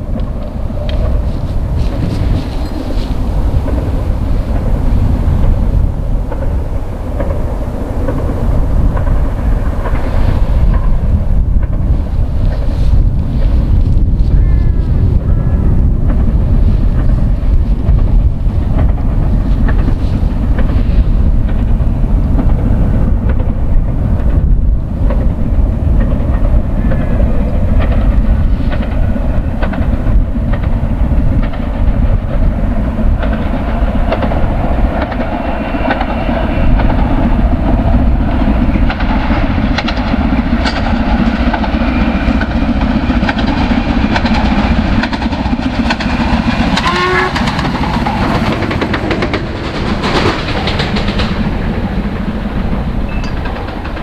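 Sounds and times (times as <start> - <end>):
wind rumble on microphone: 0.0 - 54.0
wheels clattering over rail joints: 15.8 - 54.0.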